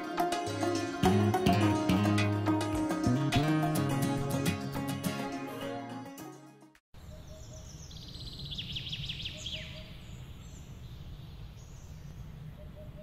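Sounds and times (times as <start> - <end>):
songbird singing: 7.0 - 13.0.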